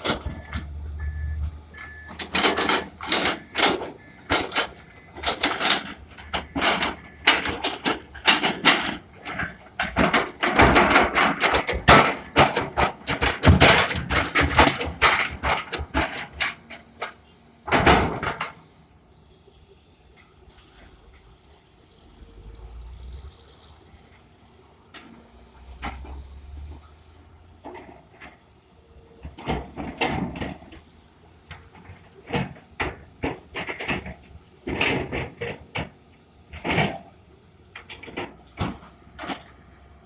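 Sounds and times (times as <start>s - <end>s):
excavator bucket scraping dirt: 0.0s - 18.7s, 20.4s - 24.2s, 25.0s - 28.4s, 29.2s - 39.9s.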